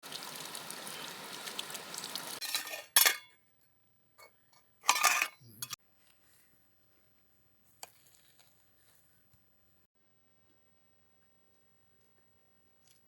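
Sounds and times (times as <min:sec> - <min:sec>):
camp pots clinking together: 0:02.4 - 0:03.4, 0:04.2 - 0:05.8.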